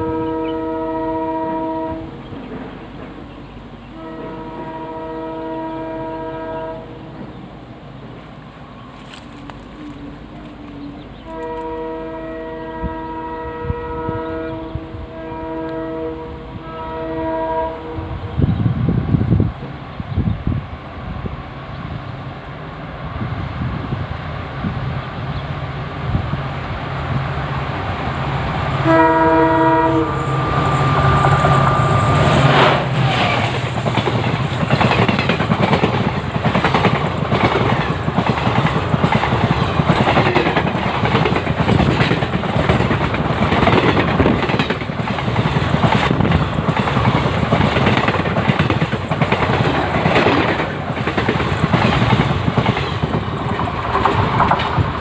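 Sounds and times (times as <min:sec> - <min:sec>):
train horn blast: 0:00.0 - 0:02.2, 0:03.8 - 0:07.2, 0:08.6 - 0:18.7, 0:28.2 - 0:33.6
diesel locomotive engine: 0:00.0 - 0:55.0
train wheels clickety-clack: 0:02.2 - 0:03.7, 0:28.6 - 0:55.0.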